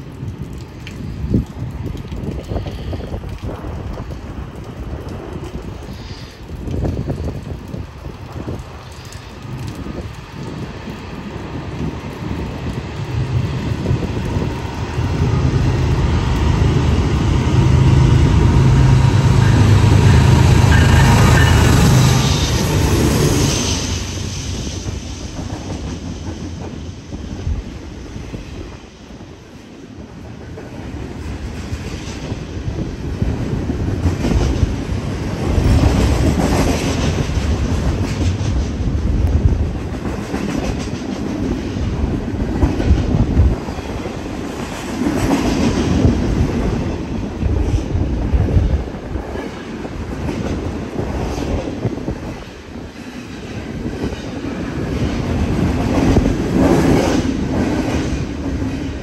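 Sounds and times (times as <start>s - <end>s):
freight train wheels clacking: 14.4s - 27.0s, 39.7s - 59.0s.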